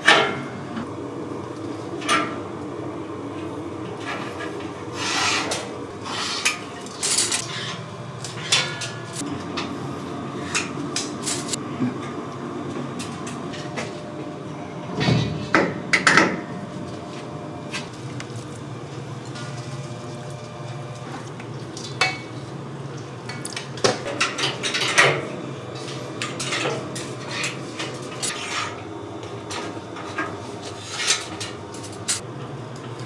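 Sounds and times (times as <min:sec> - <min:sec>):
kitchen hum: 0:00.0 - 0:33.0
utensils and dishes clinking: 0:05.2 - 0:09.7, 0:10.4 - 0:11.6, 0:23.3 - 0:28.8, 0:29.5 - 0:32.2.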